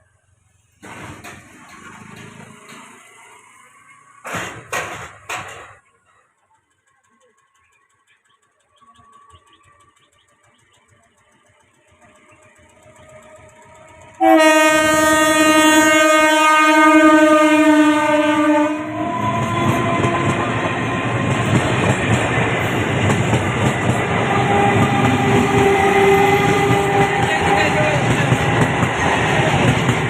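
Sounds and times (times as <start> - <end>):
train rumbling and wheel clatter: 0.0 - 30.0
train horn blast: 13.2 - 21.4, 24.1 - 28.2.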